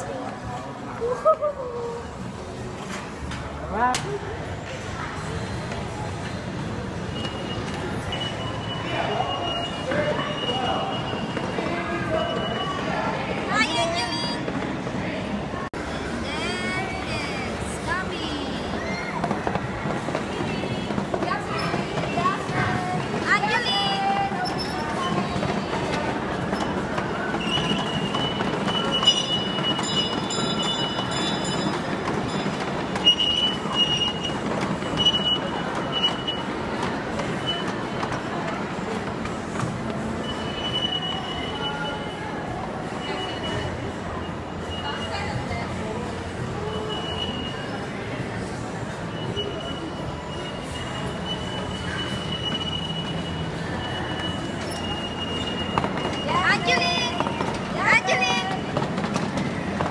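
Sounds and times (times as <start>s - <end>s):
steady background noise: 0.0s - 59.9s
train ride high steady tone: 6.7s - 59.9s.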